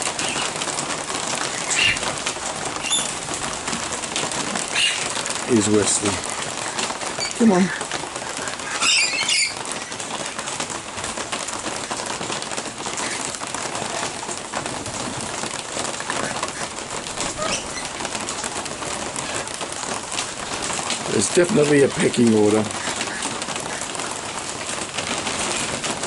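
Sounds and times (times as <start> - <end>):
steady rain: 0.0 - 26.0
parrot screech: 1.7 - 2.1, 8.6 - 9.6.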